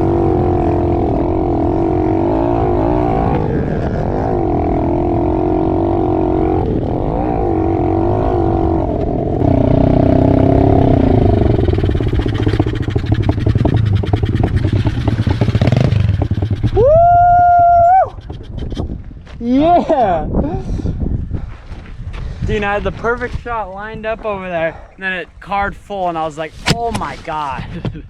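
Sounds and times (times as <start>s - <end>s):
motorbike engine revving: 0.0s - 17.1s.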